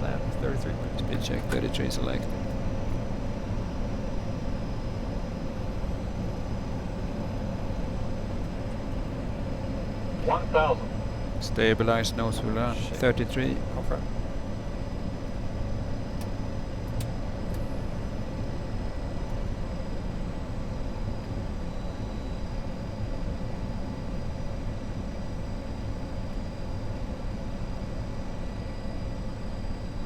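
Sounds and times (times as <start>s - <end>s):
jet cockpit airflow and engine hum: 0.0s - 30.0s
faint high-pitched tones: 10.2s - 11.0s.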